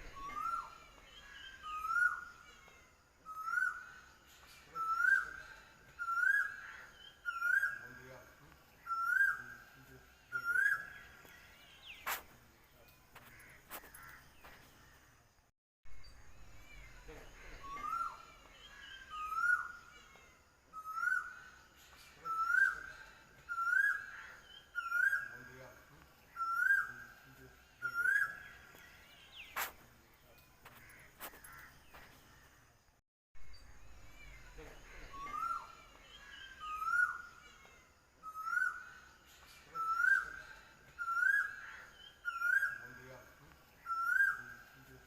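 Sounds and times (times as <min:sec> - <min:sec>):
bird whistled call: 0:00.0 - 0:00.8.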